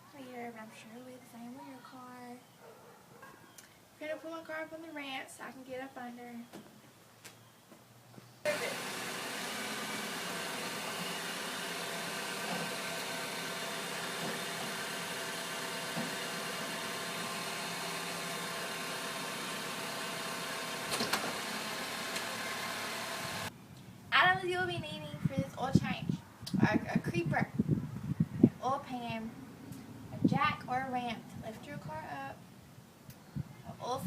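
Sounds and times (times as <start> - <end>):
car engine running: 8.5 - 23.5.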